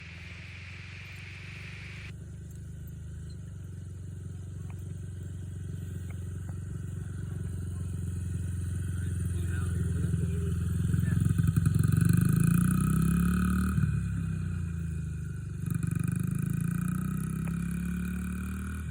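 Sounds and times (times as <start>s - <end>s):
hiss: 0.0s - 2.1s
dirt bike engine running: 0.0s - 18.9s.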